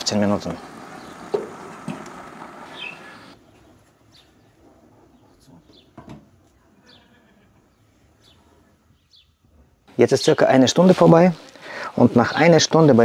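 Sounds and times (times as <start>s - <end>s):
small bird chirping: 2.6s - 6.0s.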